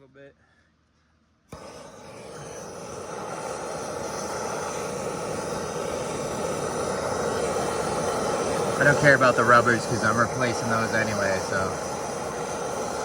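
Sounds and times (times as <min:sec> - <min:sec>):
torch flame hissing roar: 0:01.5 - 0:13.0.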